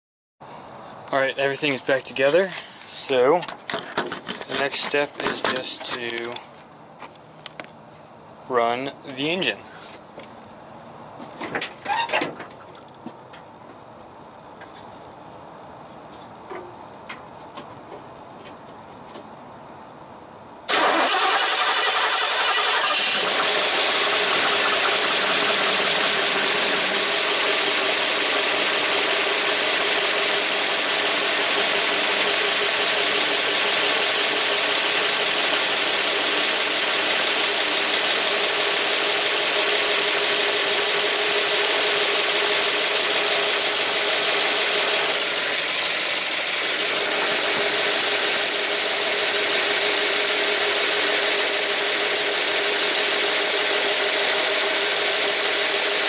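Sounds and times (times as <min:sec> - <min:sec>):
engine idling: 0:20.7 - 0:56.0.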